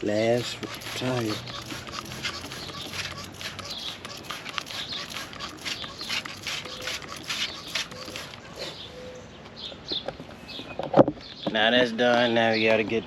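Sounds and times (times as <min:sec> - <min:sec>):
spray bottle squirting: 0:00.0 - 0:08.6.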